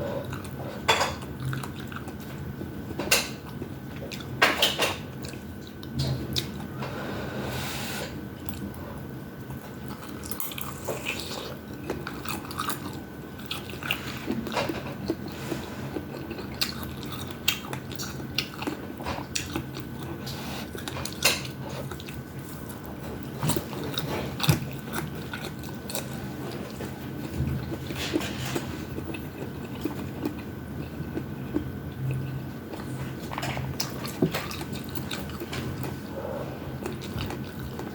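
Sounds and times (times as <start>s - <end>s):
person chewing food: 0.0s - 6.9s, 8.4s - 37.9s
steady low hum: 0.0s - 37.9s
food crunching: 9.4s - 37.9s.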